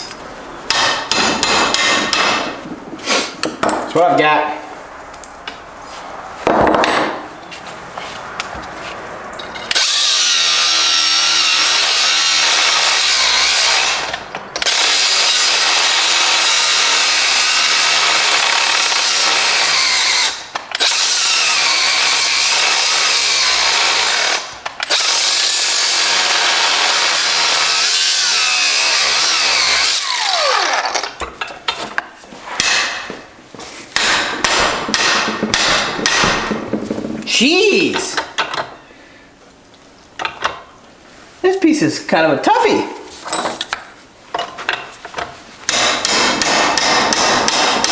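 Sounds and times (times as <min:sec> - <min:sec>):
knocks of metal parts handled: 0:03.4 - 0:04.0, 0:34.0 - 0:37.3
power tool cutting metal: 0:09.7 - 0:31.2.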